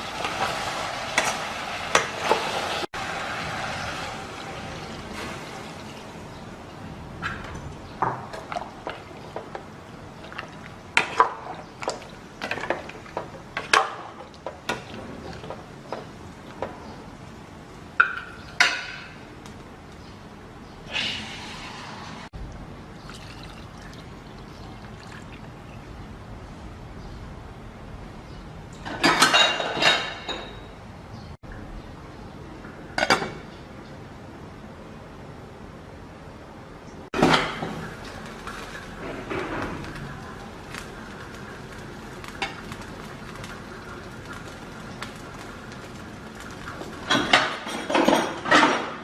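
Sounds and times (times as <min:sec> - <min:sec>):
kitchenware clattering: 0:10.2 - 0:16.9, 0:18.0 - 0:19.2, 0:28.8 - 0:30.8, 0:33.0 - 0:33.5, 0:37.2 - 0:40.0, 0:46.4 - 0:49.0.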